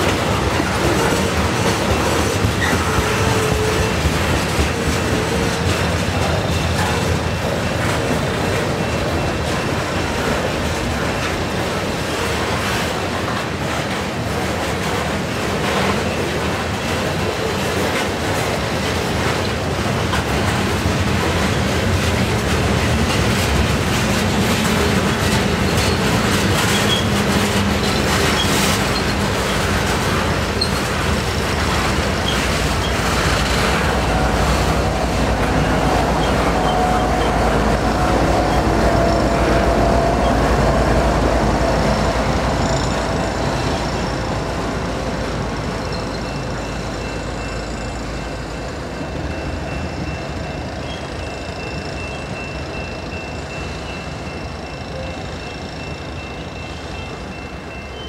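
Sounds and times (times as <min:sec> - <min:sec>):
diesel locomotive drone: 0:00.0 - 0:58.0
train wheels rumbling on rail: 0:00.0 - 0:58.0.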